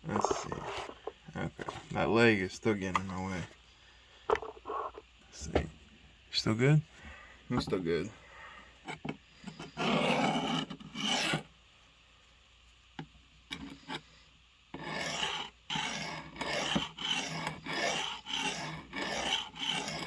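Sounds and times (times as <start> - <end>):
blade scraping on sharpening stone: 9.5 - 11.4, 14.8 - 20.0.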